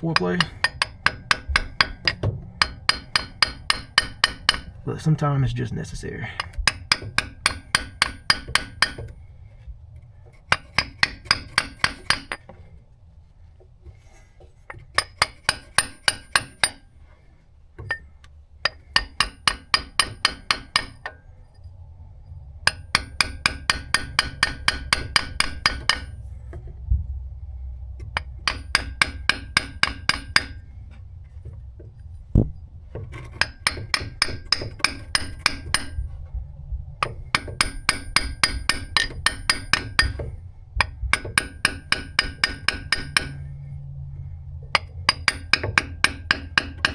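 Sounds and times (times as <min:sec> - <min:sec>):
hammer tapping metal: 0:00.0 - 0:04.8, 0:06.4 - 0:09.2, 0:10.5 - 0:12.5, 0:14.7 - 0:16.8, 0:18.6 - 0:21.2, 0:22.6 - 0:26.2, 0:28.0 - 0:30.6, 0:33.1 - 0:36.0, 0:37.0 - 0:43.5, 0:44.7 - 0:46.9.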